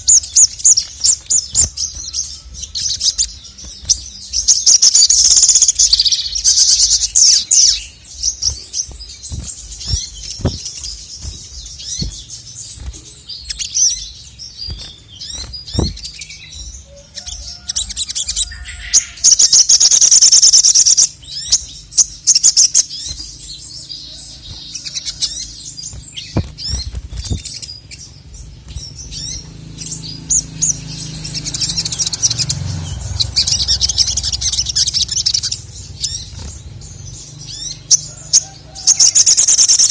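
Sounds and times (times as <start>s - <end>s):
bird chirps: 0.0s - 39.9s
bird trilling: 0.0s - 39.9s
sharp low thumps: 8.2s - 13.0s, 14.7s - 16.1s.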